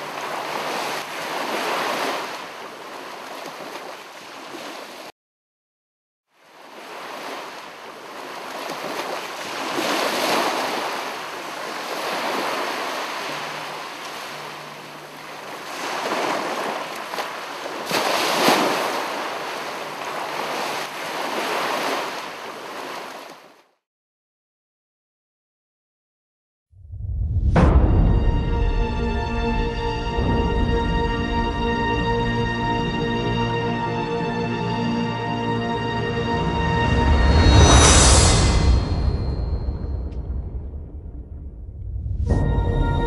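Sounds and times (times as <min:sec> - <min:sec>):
ocean waves washing on shore: 0:00.0 - 0:05.1, 0:06.4 - 0:23.6.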